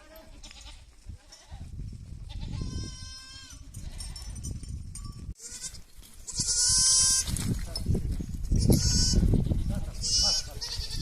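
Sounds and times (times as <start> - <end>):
goat bleating: 0.0 - 1.7, 2.3 - 4.2, 5.4 - 7.4, 8.6 - 11.0.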